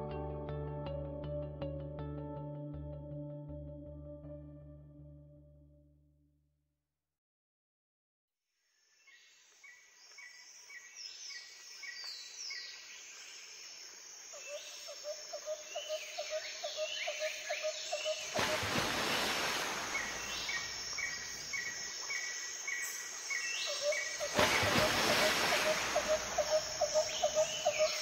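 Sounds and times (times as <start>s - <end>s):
rapid chirping calls: 19.8s - 28.0s.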